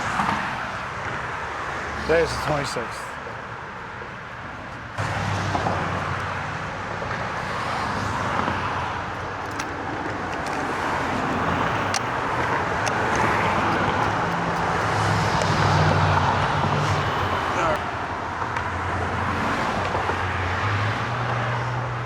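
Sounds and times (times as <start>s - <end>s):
passing cars: 0.0s - 22.0s
vehicle engine hum: 0.0s - 22.0s.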